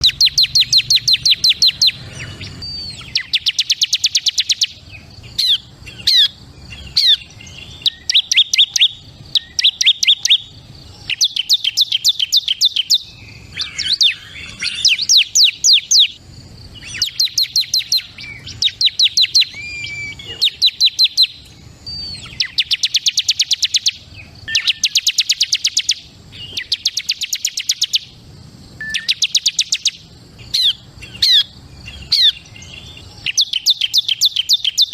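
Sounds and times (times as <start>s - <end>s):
short slurred bird calls: 0.0s - 28.2s, 28.8s - 34.9s
bird singing fast trills: 0.0s - 34.9s.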